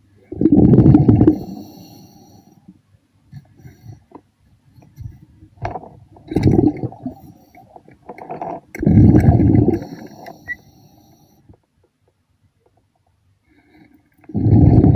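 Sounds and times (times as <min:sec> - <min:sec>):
underwater air bubbles rushing: 0:00.3 - 0:01.6, 0:06.2 - 0:07.2, 0:08.8 - 0:10.3, 0:14.3 - 0:14.9
small clicks and gurgles: 0:03.3 - 0:14.9.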